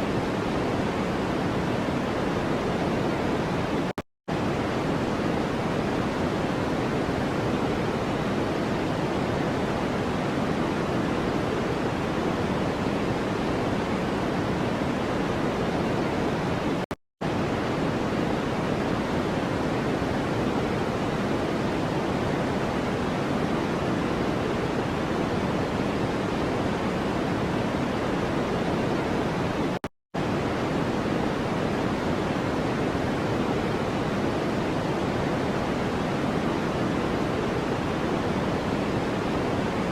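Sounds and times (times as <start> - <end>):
steady pink noise: 0.0 - 39.9.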